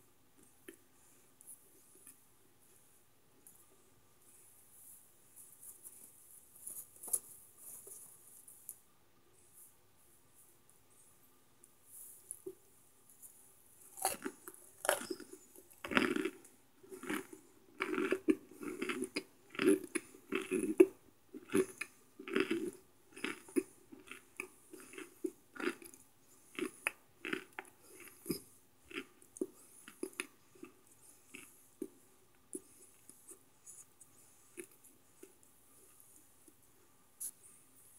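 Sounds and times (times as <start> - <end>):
dry crunchy chewing: 13.8 - 36.6.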